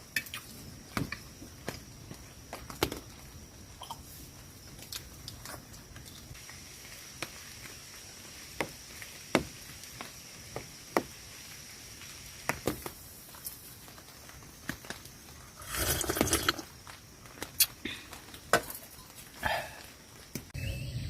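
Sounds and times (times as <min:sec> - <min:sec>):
rain hiss: 0:00.0 - 0:21.0
drops tapping on tent fabric: 0:08.6 - 0:11.2.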